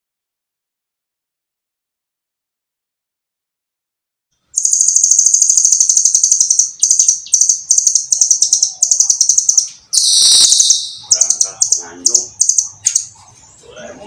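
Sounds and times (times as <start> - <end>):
nuthatch singing fast trills: 4.6 - 13.2.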